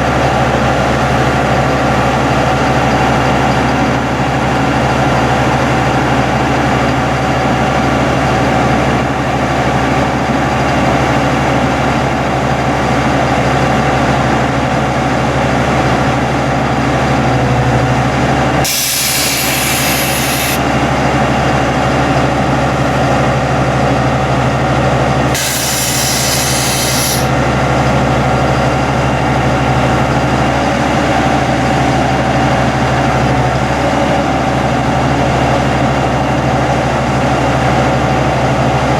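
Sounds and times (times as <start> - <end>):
diesel engine running: 0.0 - 38.9
loud hiss: 18.6 - 20.8, 25.3 - 27.4.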